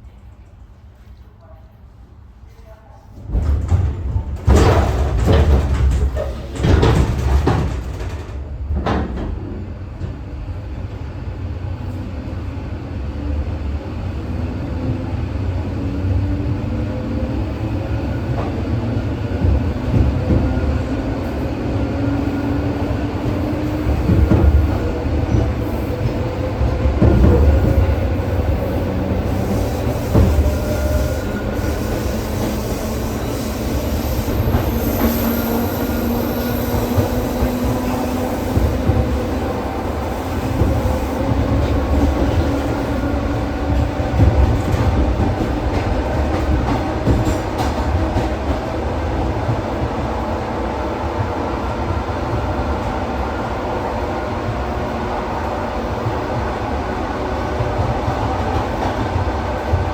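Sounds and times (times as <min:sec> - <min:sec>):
train heavy knocks and jolts: 0:03.2 - 0:10.2, 0:26.9 - 0:32.8, 0:40.1 - 0:48.7
wheels rumbling on track: 0:17.2 - 0:53.2.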